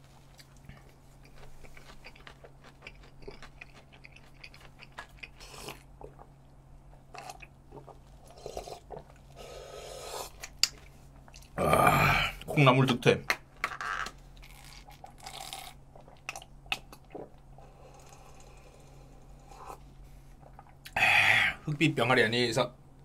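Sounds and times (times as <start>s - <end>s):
person chewing crunchy food: 0.2s - 6.4s, 14.4s - 17.3s.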